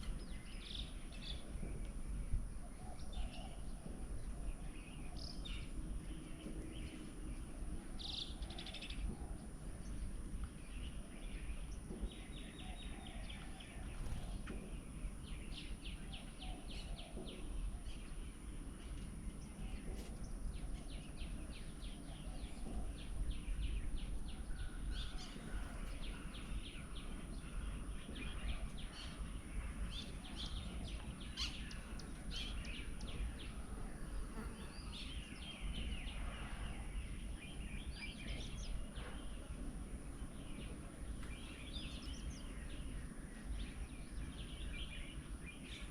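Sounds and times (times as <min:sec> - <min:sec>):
birds chirping and calling: 0:00.0 - 0:39.6.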